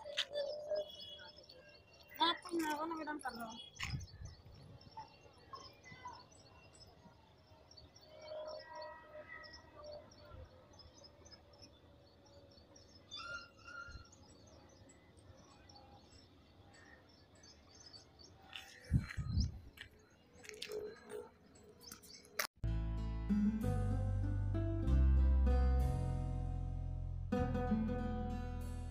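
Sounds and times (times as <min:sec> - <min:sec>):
small birds chirping: 0:00.0 - 0:22.4.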